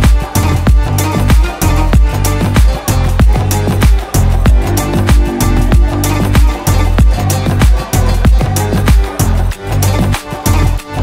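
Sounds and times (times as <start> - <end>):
music with heavy bass beat: 0.0 - 9.4.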